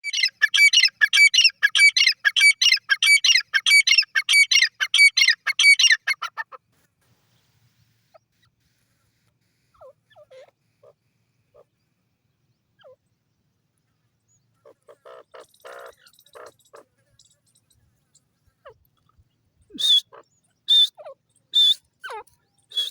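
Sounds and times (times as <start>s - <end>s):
francolin calling: 0.0s - 6.5s, 14.3s - 22.9s.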